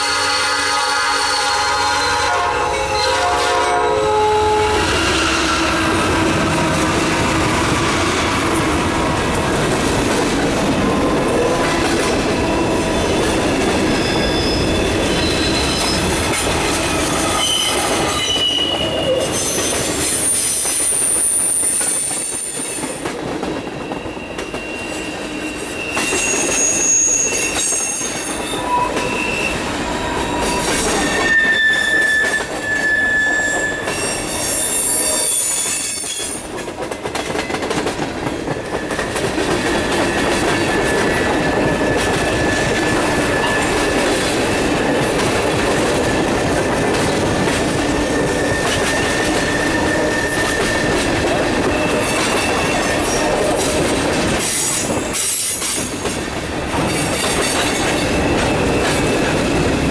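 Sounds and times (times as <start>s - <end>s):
diesel locomotives rumbling: 0.0s - 22.3s, 36.4s - 59.9s
high-pitched wheel squeals: 12.5s - 16.1s, 17.0s - 21.9s, 23.8s - 36.4s, 47.9s - 51.0s
train wheels clattering: 33.6s - 59.9s.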